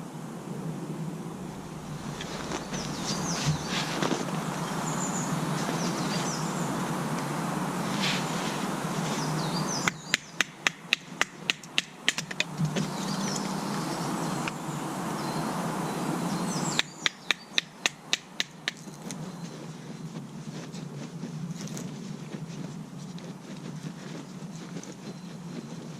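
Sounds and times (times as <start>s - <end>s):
high bird chirps: 1.6s - 6.7s, 9.2s - 12.2s, 16.3s - 19.5s
rapid sharp knocks: 9.9s - 12.6s, 16.8s - 18.8s.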